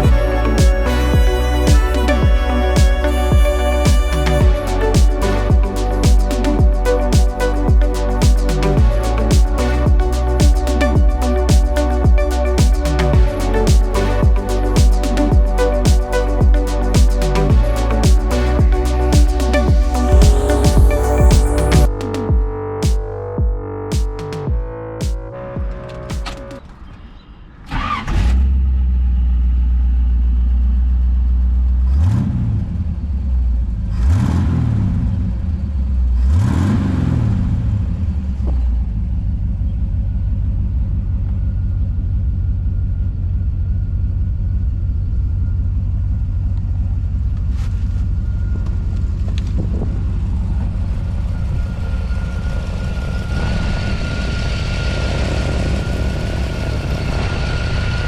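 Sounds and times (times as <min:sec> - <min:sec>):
car engine revving and idling: 0:27.9 - 0:58.0.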